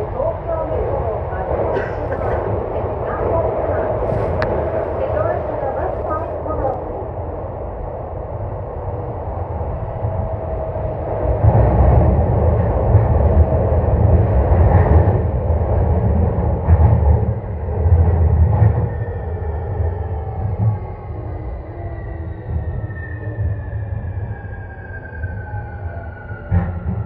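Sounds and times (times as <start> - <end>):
train wheels rumbling in tunnel: 0.0 - 27.0.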